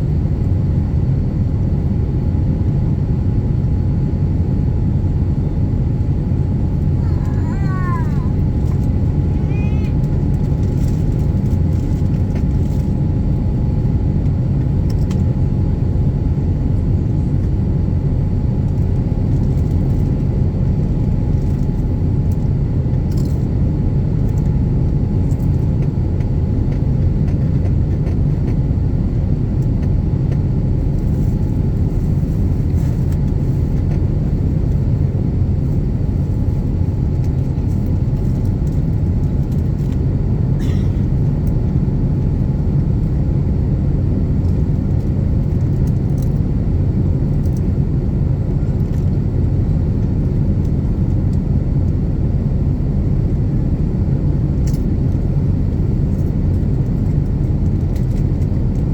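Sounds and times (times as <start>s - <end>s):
aircraft cabin rumble: 0.0s - 58.9s.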